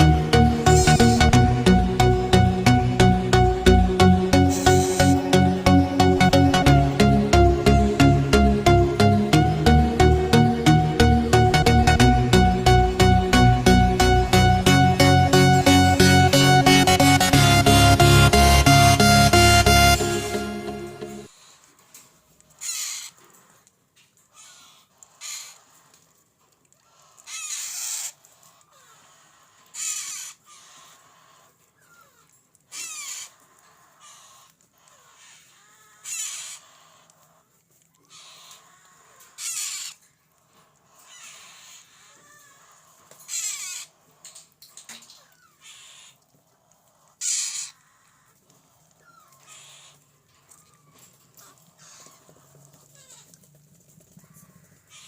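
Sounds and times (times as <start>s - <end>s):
parrot chick screeching: 22.6s - 23.6s, 26.9s - 37.4s, 38.1s - 40.1s, 40.9s - 44.2s, 45.1s - 46.2s, 47.0s - 48.4s, 49.0s - 50.0s.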